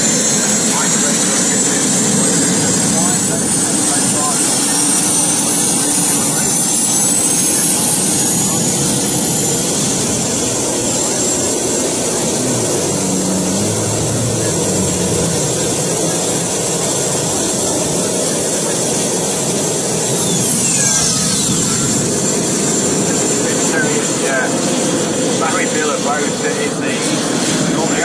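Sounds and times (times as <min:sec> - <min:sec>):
jet turbine engine whining: 0:00.0 - 0:28.0.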